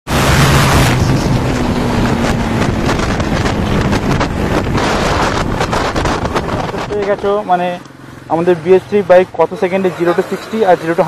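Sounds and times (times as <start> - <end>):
wind rushing over microphone: 0.1 - 7.5
motorcycle engine accelerating: 0.1 - 11.0.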